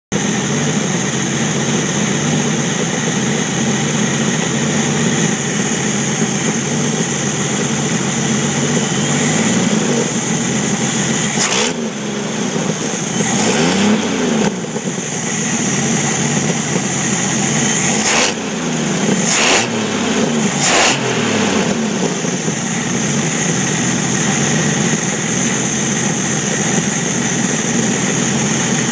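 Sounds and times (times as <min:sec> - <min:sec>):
engine misfiring and revving: 0:00.1 - 0:28.9.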